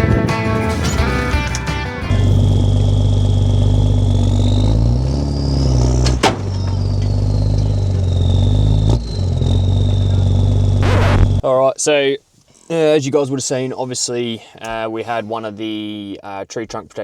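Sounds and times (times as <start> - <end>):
truck engine revving: 0.0 - 11.4
high whine: 0.7 - 11.4
sharp bang: 6.0 - 6.9.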